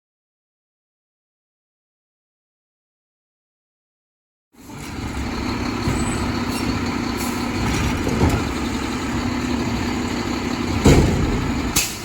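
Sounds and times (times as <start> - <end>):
truck engine humming: 4.6 - 12.0.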